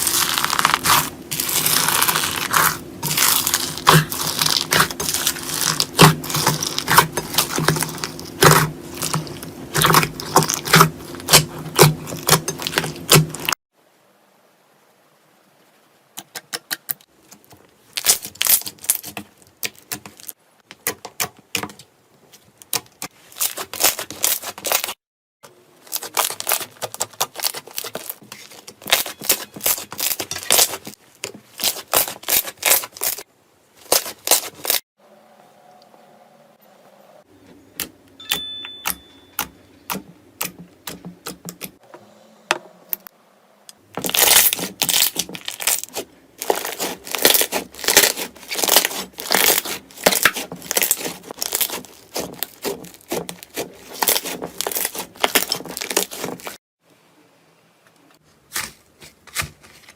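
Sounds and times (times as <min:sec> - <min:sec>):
slime crackling and popping: 0:00.0 - 0:13.6, 0:17.9 - 0:20.3, 0:25.9 - 0:30.9, 0:31.5 - 0:33.2, 0:44.0 - 0:56.6
slime squishing: 0:00.0 - 0:13.6, 0:17.9 - 0:20.3, 0:22.6 - 0:25.0, 0:25.8 - 0:33.2, 0:33.8 - 0:34.8, 0:43.9 - 0:56.6.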